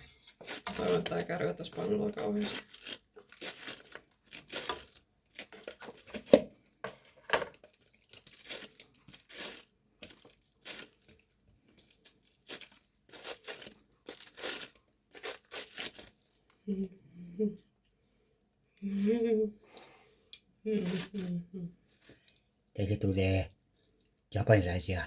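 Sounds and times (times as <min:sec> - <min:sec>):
cabbage scraped with slicer: 0:00.0 - 0:04.9, 0:08.3 - 0:09.7, 0:12.4 - 0:16.1.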